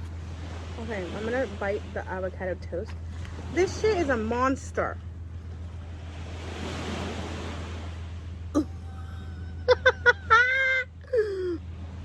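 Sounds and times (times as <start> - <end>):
woman humming mm with mouth full: 8.6 - 9.6, 10.6 - 11.6.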